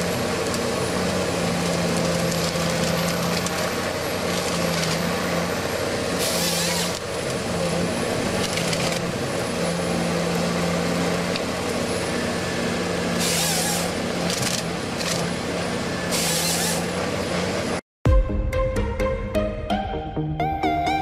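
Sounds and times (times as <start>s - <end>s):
heavy machine engine running: 0.0s - 17.8s
music: 18.0s - 21.0s.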